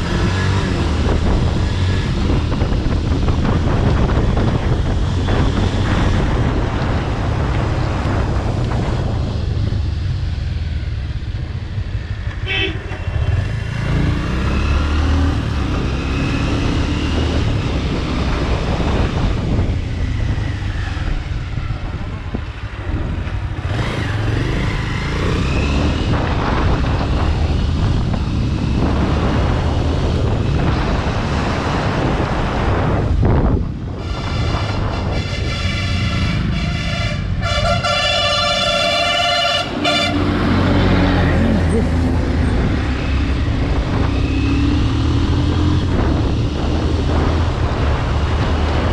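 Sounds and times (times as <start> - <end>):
wind rumble on microphone: 0.0 - 48.9
vehicle horn toot: 12.4 - 13.2, 34.1 - 40.2.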